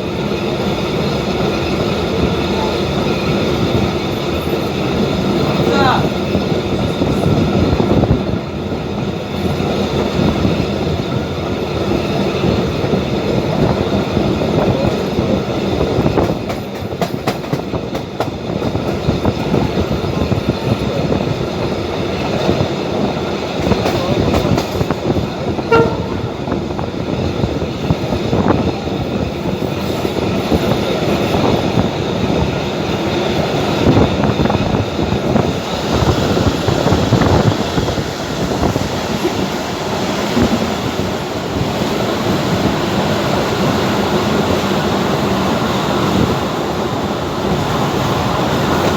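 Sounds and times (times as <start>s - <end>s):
train wheels rumbling on rails: 0.0s - 48.9s.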